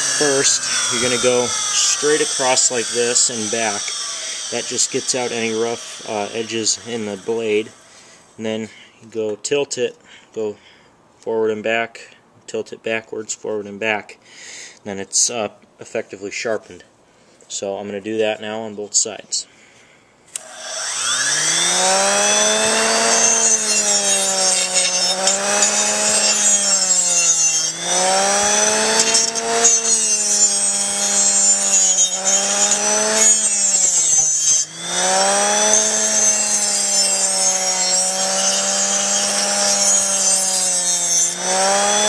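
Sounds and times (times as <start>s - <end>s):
grinder grinding metal blade: 0.0s - 8.0s, 20.4s - 42.0s.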